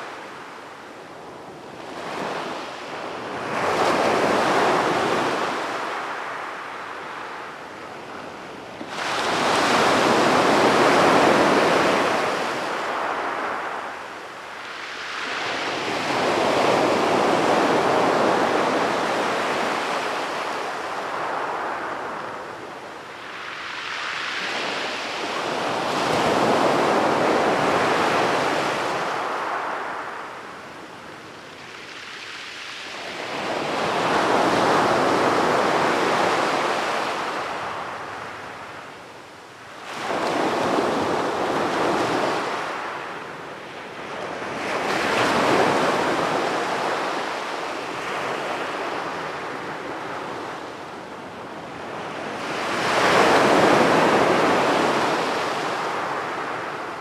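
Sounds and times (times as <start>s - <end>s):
sea waves breaking on beach: 8.8s - 22.5s, 39.8s - 50.9s, 51.9s - 57.0s.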